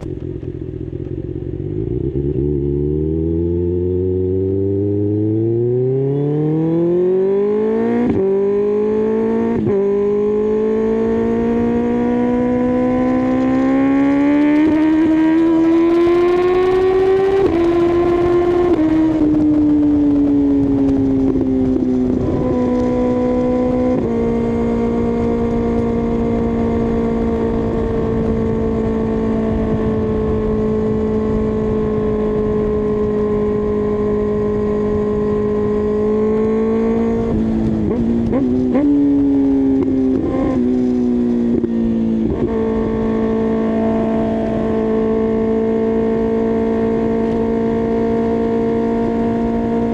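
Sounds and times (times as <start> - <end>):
motorcycle engine pulling hard: 0.0 - 49.9
wind rush: 10.5 - 49.9.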